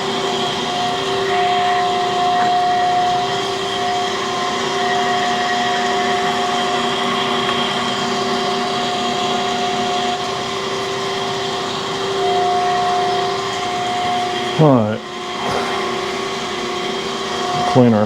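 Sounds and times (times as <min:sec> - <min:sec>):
grinding machine whine: 0:00.0 - 0:18.0
low machine hum: 0:00.0 - 0:18.0.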